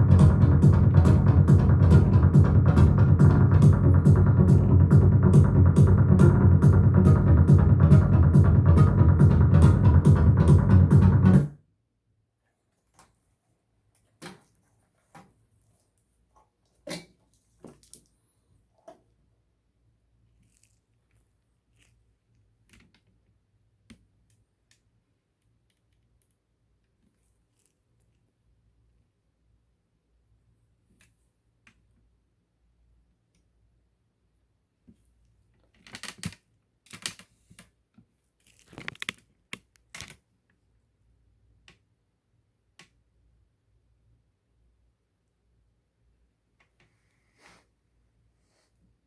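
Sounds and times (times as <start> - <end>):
rustling crinkling noises: 35.5 - 40.2.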